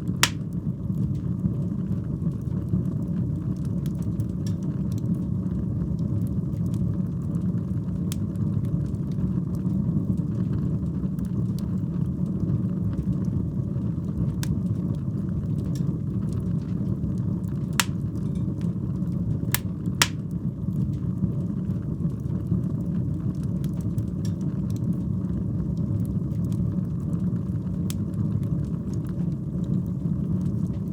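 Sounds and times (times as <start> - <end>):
fire crackling: 0.0 - 0.6, 17.8 - 18.6, 19.5 - 20.4
fire rumbling: 0.0 - 4.4, 13.6 - 30.9
loud wood pops: 0.2 - 0.4, 17.8 - 18.0, 19.6 - 20.2.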